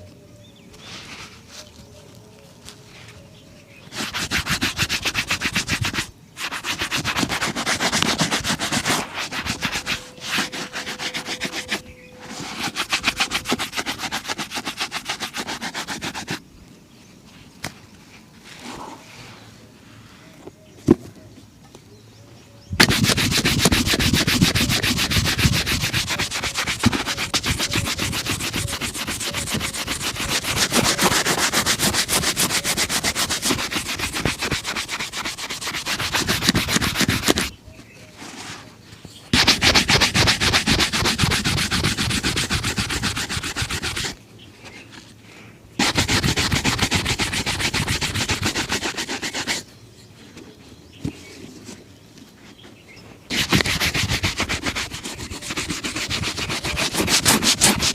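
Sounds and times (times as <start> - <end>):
brush scrubbing leather shoe: 3.9 - 16.4, 22.8 - 37.5, 39.4 - 44.2, 45.8 - 49.6, 53.3 - 57.9.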